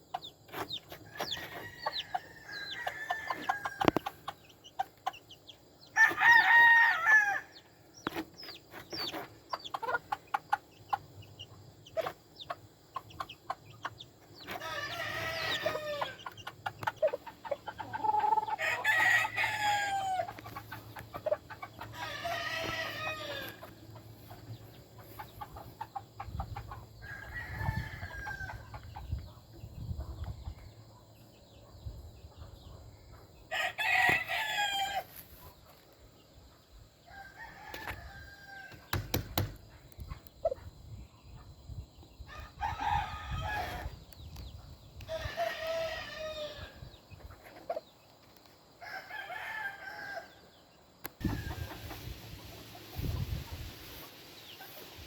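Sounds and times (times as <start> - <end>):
roosters crowing: 1.0 - 4.3, 5.9 - 7.8, 14.4 - 16.4, 17.8 - 24.3, 27.0 - 28.9, 33.5 - 35.2, 37.0 - 39.4, 42.3 - 44.0, 45.0 - 47.0, 48.8 - 50.6.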